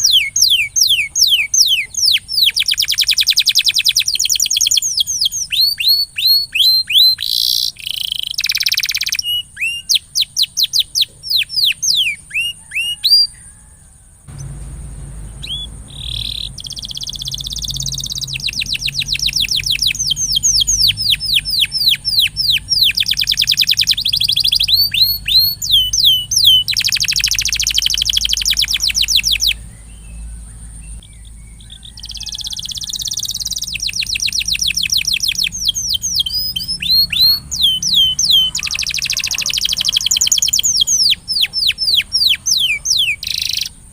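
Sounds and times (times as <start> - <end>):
canary singing trills: 0.0 - 43.9
low background hum: 12.2 - 43.9.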